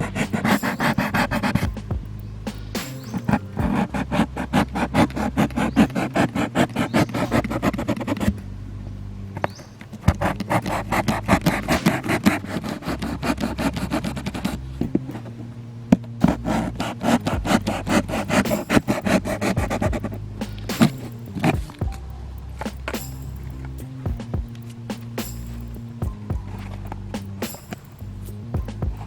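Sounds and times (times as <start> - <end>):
saw strokes: 0.0 - 8.3, 16.2 - 21.8.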